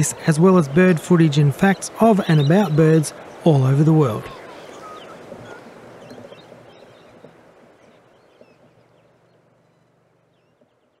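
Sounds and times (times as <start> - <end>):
faint bird chirps: 4.1 - 11.0.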